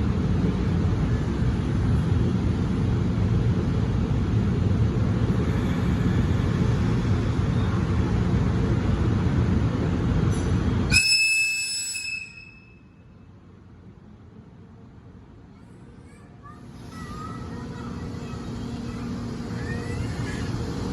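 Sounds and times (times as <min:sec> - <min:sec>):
train rumbling: 0:00.0 - 0:20.9
locomotive air whistle: 0:10.9 - 0:13.0.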